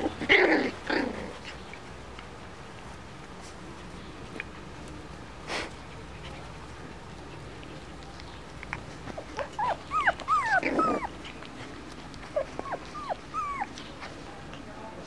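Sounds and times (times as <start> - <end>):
puppies yipping and squealing: 5.9 - 14.2.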